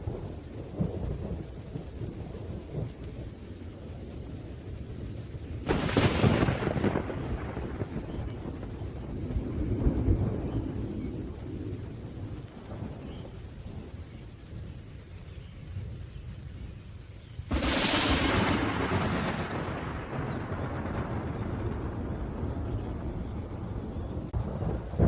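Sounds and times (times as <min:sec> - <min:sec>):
low rolling thunder rumble: 0:00.0 - 0:25.0
rain: 0:00.0 - 0:25.0
sharp thunderclap: 0:05.6 - 0:13.2, 0:17.5 - 0:25.0.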